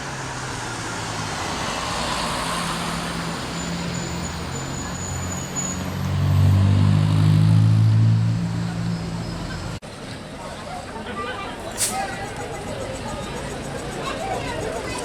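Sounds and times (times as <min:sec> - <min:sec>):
vehicle engine humming: 0:00.0 - 0:10.0
outdoor background noise: 0:00.0 - 0:15.0.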